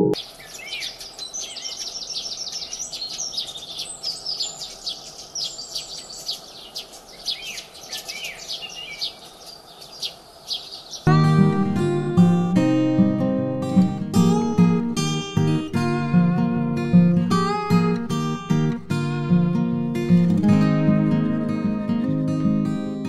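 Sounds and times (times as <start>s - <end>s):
small birds chirping: 0.0s - 11.2s
outdoor background noise: 0.2s - 15.2s
acoustic guitar music: 11.1s - 23.0s.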